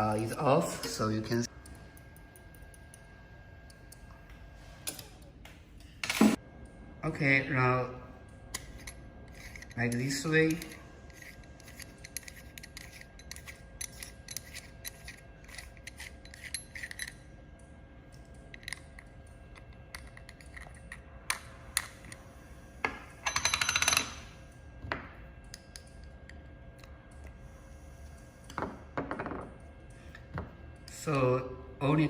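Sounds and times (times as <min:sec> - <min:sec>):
small metal parts clicking: 0:08.5 - 0:17.3.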